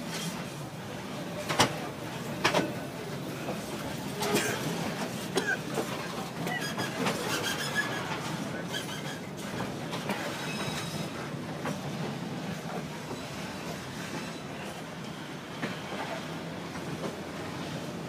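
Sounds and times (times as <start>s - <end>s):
train wheels rumbling on track: 0.0s - 18.0s
clacks at rail joints: 1.4s - 3.6s, 4.2s - 14.5s
faint high wheel squeal: 6.4s - 9.3s, 10.3s - 11.2s.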